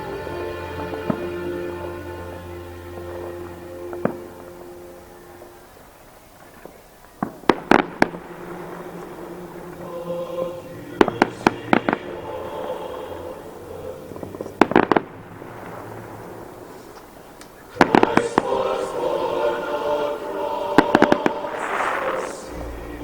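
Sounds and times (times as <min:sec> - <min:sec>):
faint background music: 0:00.0 - 0:07.0
fireworks bursting with sharp bangs: 0:06.4 - 0:10.0, 0:10.7 - 0:13.2, 0:14.1 - 0:23.0.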